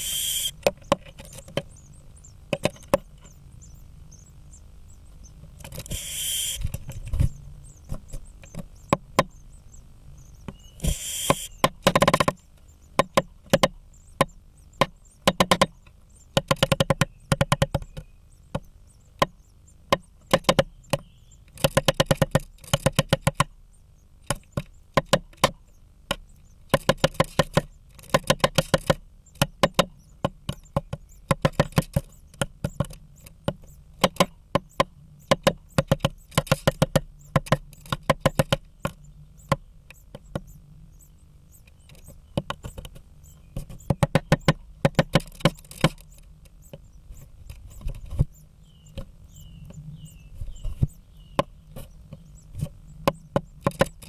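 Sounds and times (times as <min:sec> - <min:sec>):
woodpecker pecking wood: 0:00.0 - 0:23.6, 0:24.2 - 0:54.0
faint high chirps: 0:06.0 - 0:11.7, 0:38.8 - 0:44.6, 0:46.1 - 0:53.6.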